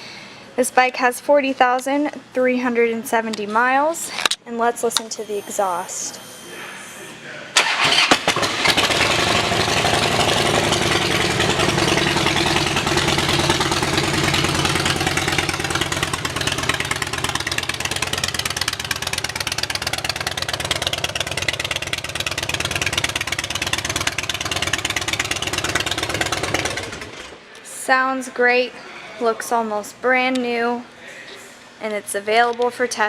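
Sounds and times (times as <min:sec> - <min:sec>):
motorcycle engine idling: 0:08.3 - 0:27.3.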